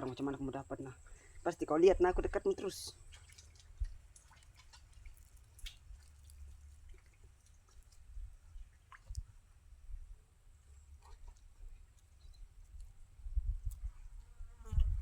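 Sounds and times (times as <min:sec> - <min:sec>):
water drips and splashes: 0:02.5 - 0:09.8, 0:10.7 - 0:13.1.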